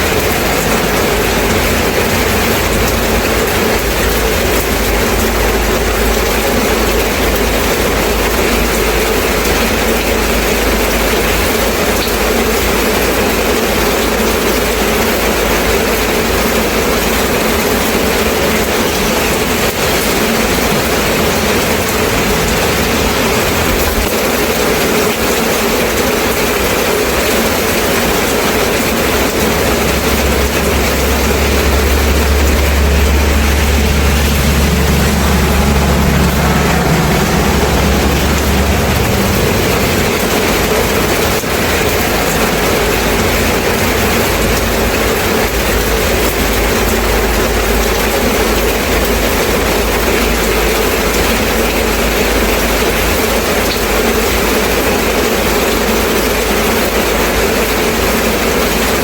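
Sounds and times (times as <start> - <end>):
low rumble: 0.0 - 9.5, 17.2 - 26.0, 27.0 - 47.9
steady rain falling: 0.0 - 59.0.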